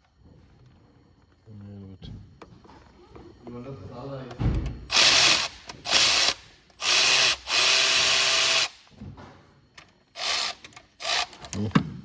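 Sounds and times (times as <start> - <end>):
cordless power tool bursts: 4.9 - 8.9, 10.2 - 11.4.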